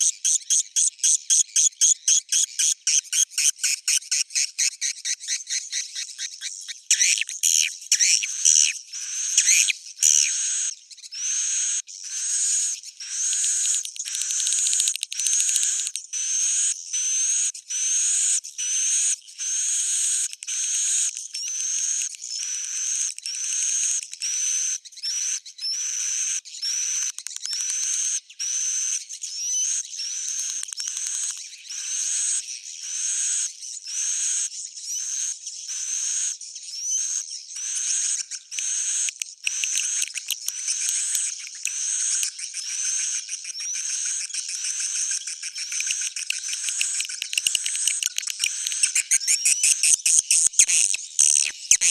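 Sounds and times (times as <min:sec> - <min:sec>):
swiftlet chittering chirps: 0:02.7 - 0:15.9, 0:37.6 - 0:51.9.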